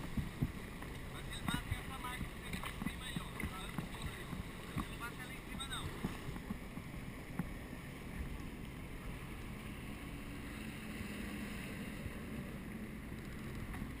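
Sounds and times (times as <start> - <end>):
wind noise on microphone: 0.0 - 7.5
jet ski engine running: 0.0 - 14.0.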